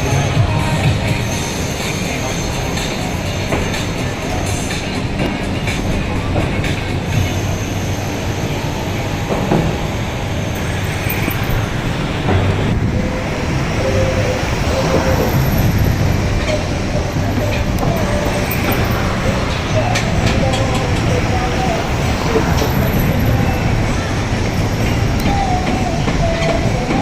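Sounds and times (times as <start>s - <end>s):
heavy mechanical rumble: 0.0s - 27.0s.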